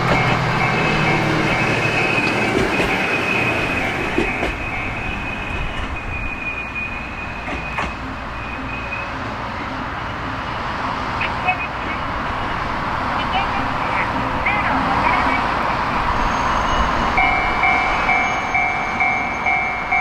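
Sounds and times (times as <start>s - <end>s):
train rumbling past: 0.0s - 20.0s
high steady squeal: 16.0s - 19.8s.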